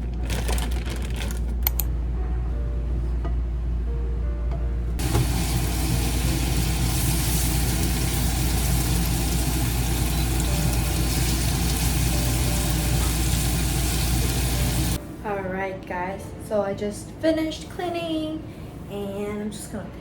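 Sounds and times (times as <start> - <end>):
vacuum cleaner running: 5.0 - 15.0.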